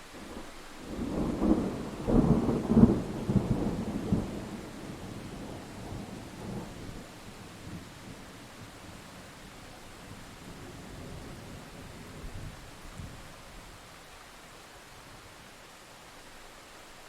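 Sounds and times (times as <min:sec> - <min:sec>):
steady rain: 0:00.0 - 0:17.0
thunder cracks and rumble: 0:00.9 - 0:07.8.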